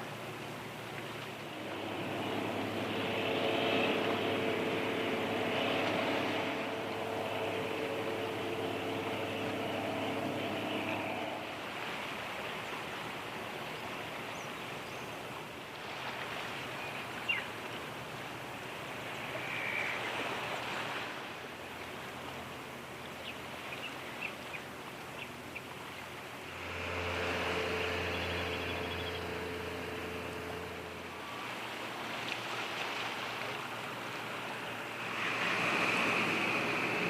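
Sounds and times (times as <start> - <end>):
boat engine hum: 0.0 - 37.0
waves and wash: 0.0 - 37.0.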